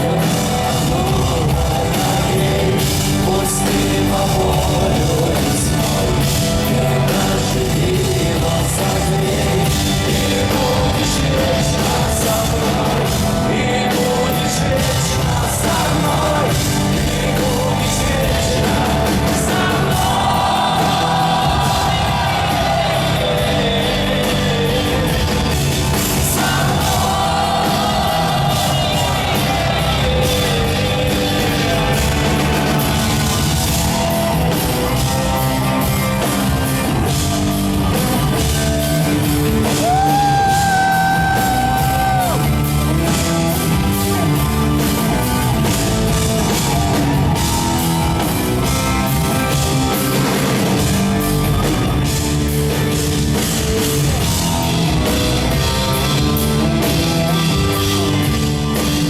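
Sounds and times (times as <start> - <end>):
person singing: 0.0 - 32.8, 39.4 - 45.2
rock band playing live: 0.0 - 59.0.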